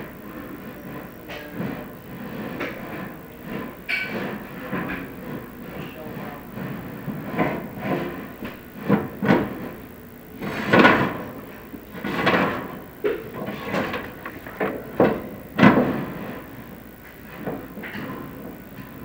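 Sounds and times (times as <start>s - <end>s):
scrapes and knocks: 0.1s - 19.0s.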